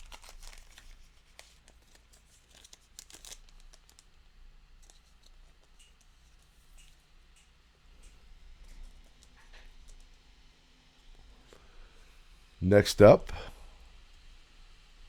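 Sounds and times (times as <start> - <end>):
card crinkling in plastic sleeve: 0.0 - 5.8.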